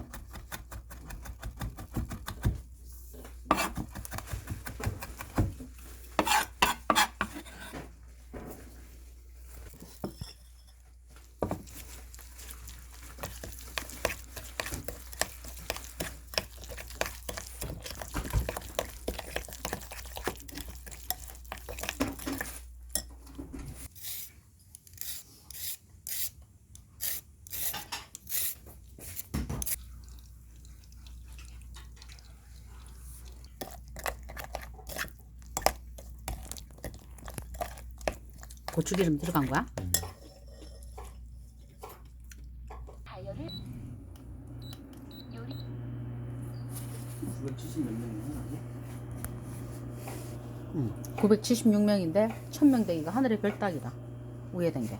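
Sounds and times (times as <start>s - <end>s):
stirring: 0.0s - 7.8s, 8.8s - 24.3s, 27.0s - 42.9s, 44.0s - 54.9s
utensils clinking against bowls: 33.6s - 41.2s.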